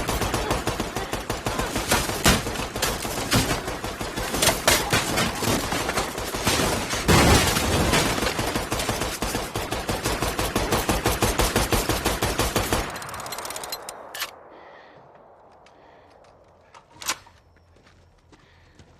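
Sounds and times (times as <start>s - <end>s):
automatic gunfire: 0.0s - 13.6s
single sharp gunshot: 7.1s - 8.1s
heavy blast: 7.1s - 8.4s.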